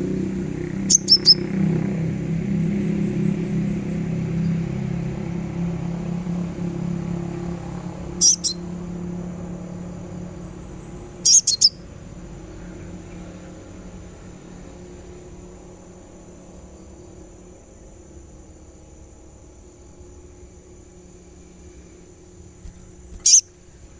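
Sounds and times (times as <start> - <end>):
bird chirping: 0.8 - 1.5, 8.2 - 8.6, 10.8 - 11.8, 22.6 - 23.5.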